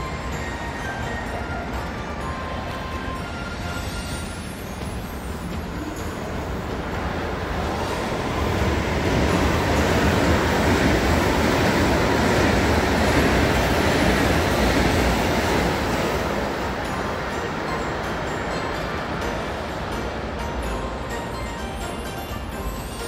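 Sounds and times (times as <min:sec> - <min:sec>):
train rail rumble: 0:00.0 - 0:23.0.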